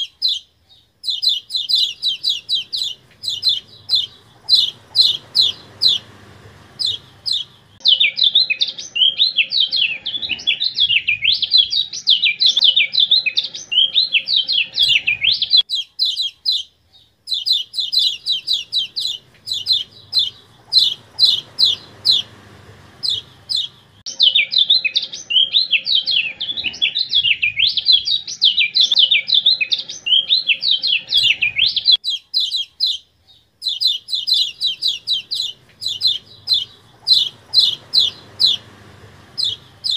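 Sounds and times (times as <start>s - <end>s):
bird fast jumbled warble: 1.0s - 7.8s, 17.3s - 24.0s, 33.6s - 39.9s.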